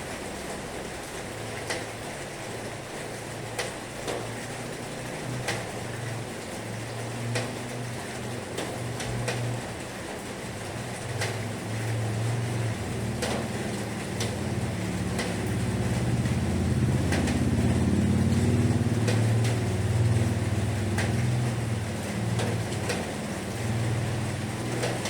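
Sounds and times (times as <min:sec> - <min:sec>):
heavy rain with low rumble: 0:00.0 - 0:25.0
sharp drips: 0:00.2 - 0:25.0.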